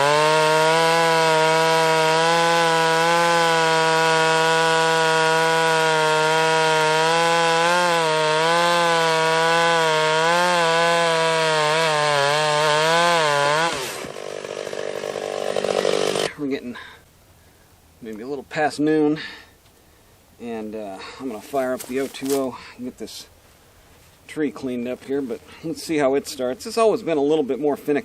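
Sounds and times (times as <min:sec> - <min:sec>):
chainsaw cutting wood: 0:00.0 - 0:16.4.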